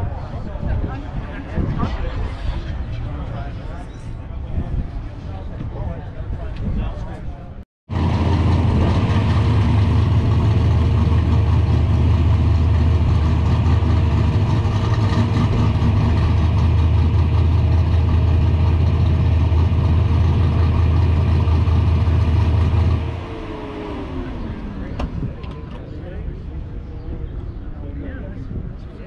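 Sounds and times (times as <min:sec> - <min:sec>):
engine winding down: 0:07.9 - 0:25.8
car engine idling with whine: 0:07.9 - 0:26.0.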